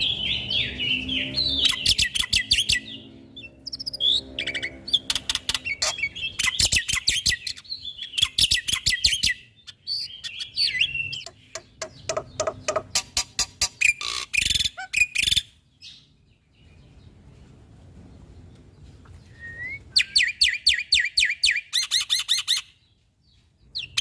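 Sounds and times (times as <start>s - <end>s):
starling singing: 0.0s - 16.0s.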